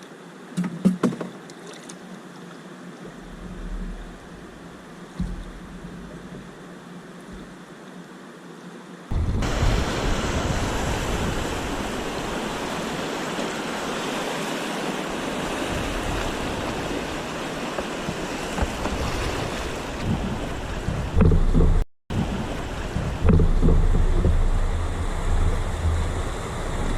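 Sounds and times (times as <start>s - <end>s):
wind on microphone: 9.1s - 26.9s.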